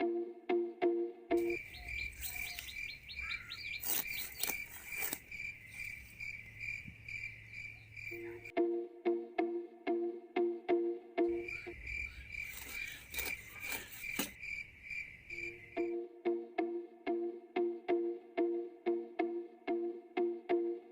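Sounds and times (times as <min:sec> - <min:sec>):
rhythmic background music: 0:00.0 - 0:01.6, 0:08.5 - 0:11.8, 0:15.8 - 0:20.9
insect chirping trill: 0:01.4 - 0:08.5, 0:11.3 - 0:16.1.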